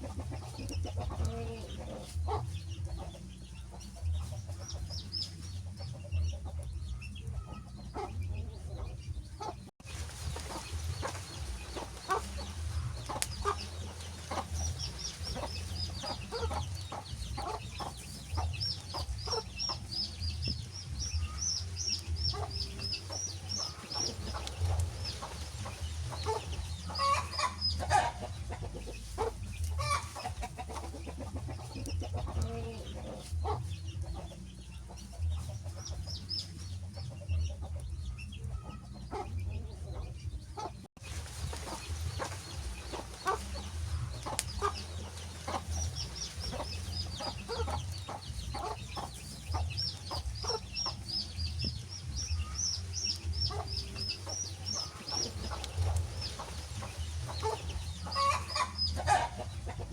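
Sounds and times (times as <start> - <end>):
chickens clucking: 0.0 - 59.9
steady low rumble: 39.3 - 59.9.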